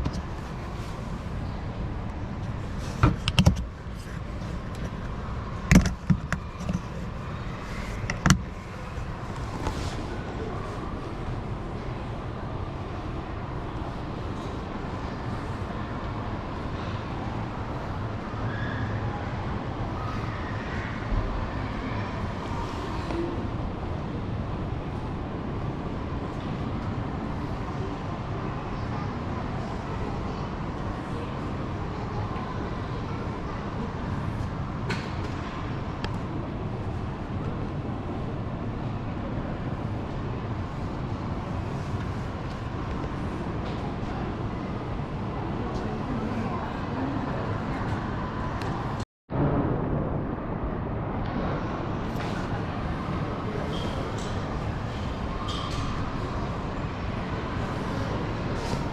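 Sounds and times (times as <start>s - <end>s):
car engine and road noise: 0.0s - 14.5s.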